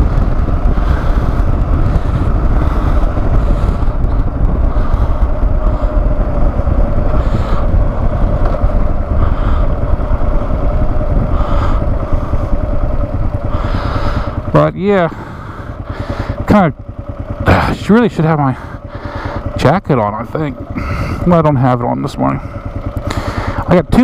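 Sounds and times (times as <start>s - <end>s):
wind rumbling on microphone: 0.0s - 16.2s, 20.4s - 21.4s
faint steady whine: 0.0s - 24.0s
motorcycle engine cruising: 0.0s - 24.0s.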